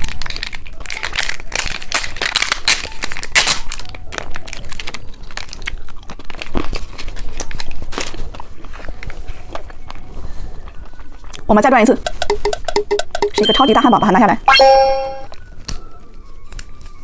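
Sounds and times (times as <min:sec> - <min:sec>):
plastic wrapper crinkling and tearing: 0:00.0 - 0:11.5.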